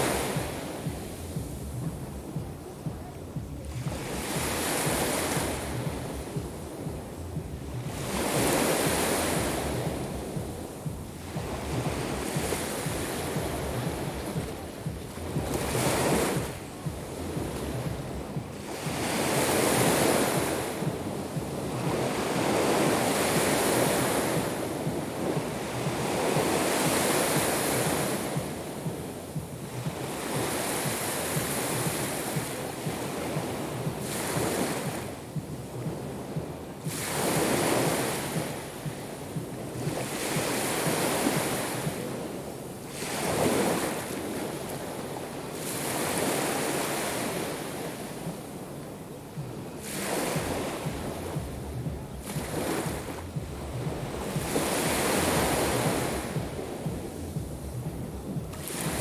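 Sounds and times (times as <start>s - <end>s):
waves breaking on shore: 0.0s - 59.0s
wind rumbling on microphone: 0.0s - 59.0s.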